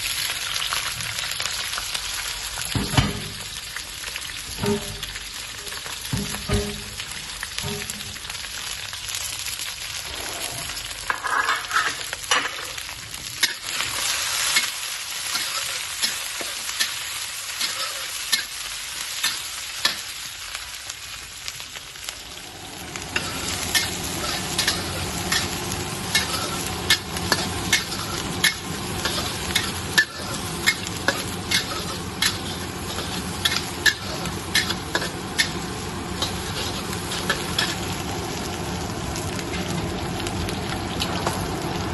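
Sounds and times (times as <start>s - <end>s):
oil sizzling in a pan: 0.0s - 41.9s.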